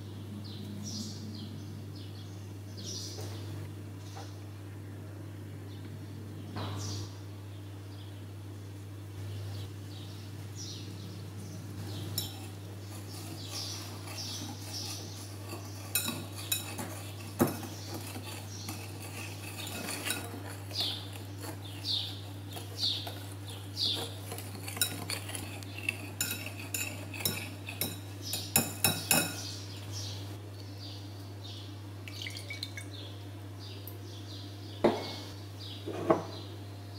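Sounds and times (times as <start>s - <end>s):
whisk wires clinking on bowl: 12.1s - 29.5s
whisk swishing dry mix: 12.2s - 29.0s.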